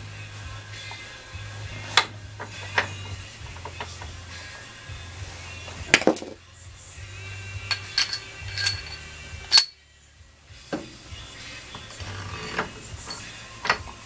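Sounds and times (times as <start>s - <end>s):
metal tools clinking: 5.9s - 6.4s, 7.7s - 9.8s, 12.1s - 14.0s.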